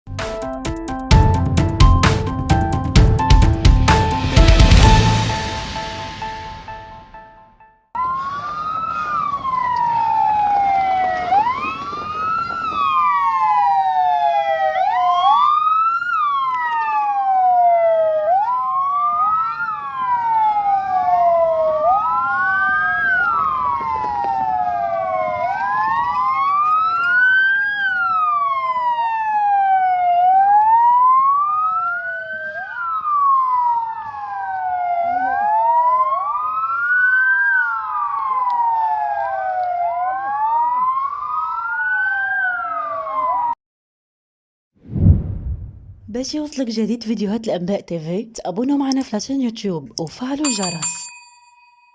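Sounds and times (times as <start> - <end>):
emergency sirens wailing: 1.2 - 6.7, 8.0 - 43.6.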